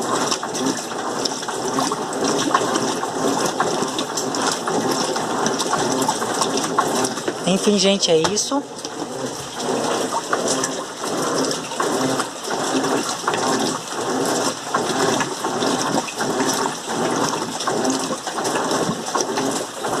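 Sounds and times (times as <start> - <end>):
washing machine water sloshing: 0.0 - 20.0.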